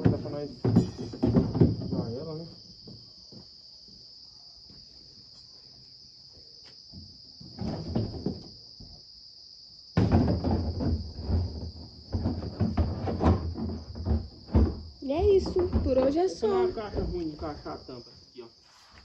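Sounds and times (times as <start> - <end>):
knocking and clatter of handling: 0.0 - 2.2, 10.0 - 16.2
crickets chirring: 0.0 - 19.0.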